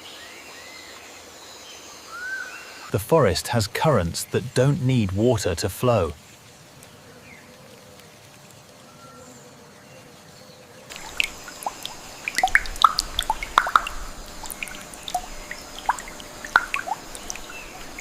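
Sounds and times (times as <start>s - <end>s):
faint steady hush: 10.9s - 18.0s
water dripping and plopping: 10.9s - 18.0s.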